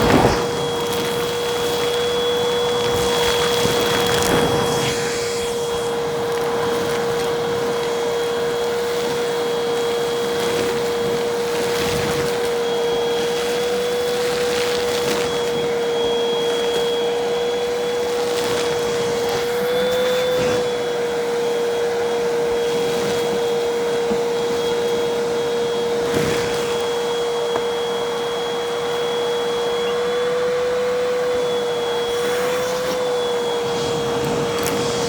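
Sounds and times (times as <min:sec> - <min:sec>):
debris rattling up nozzle: 0:00.0 - 0:12.4
vacuum cleaner motor whine: 0:00.0 - 0:35.0.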